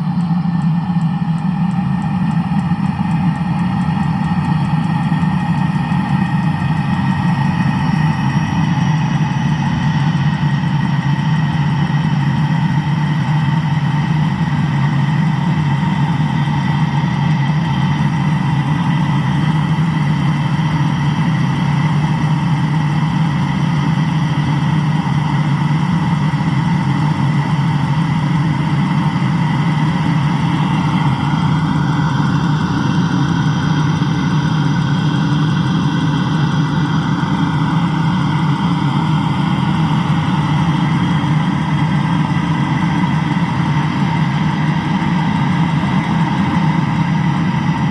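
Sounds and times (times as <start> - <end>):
car engine idling: 0.0 - 47.9.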